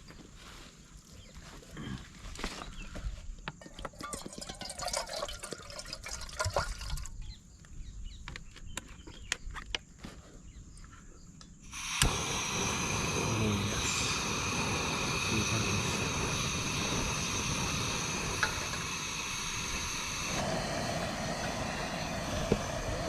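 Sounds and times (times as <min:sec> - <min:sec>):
kettle handling clatter: 0:03.6 - 0:07.1
water pouring into kettle: 0:03.8 - 0:07.2, 0:11.8 - 0:23.0
steady rushing hiss: 0:11.6 - 0:23.0.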